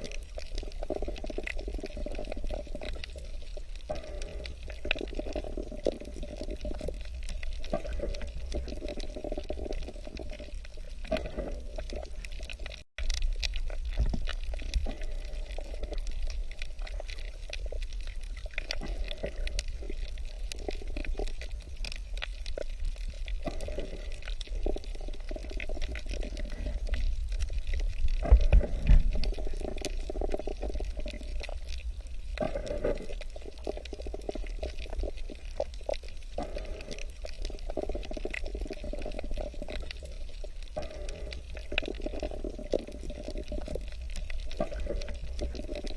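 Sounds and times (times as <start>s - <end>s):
water gurgling and sloshing: 0.0s - 45.9s.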